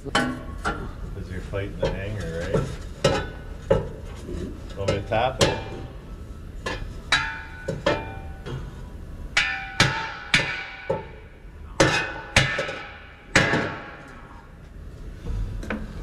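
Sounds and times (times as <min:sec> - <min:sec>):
hammer striking metal pipe: 0:04.8 - 0:05.9, 0:06.7 - 0:08.6, 0:09.4 - 0:14.1.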